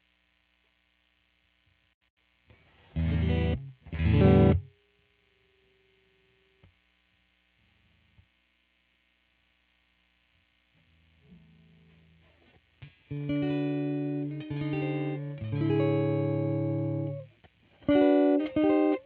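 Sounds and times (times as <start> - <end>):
distorted electric guitar chords: 2.8 - 4.7, 10.9 - 19.0.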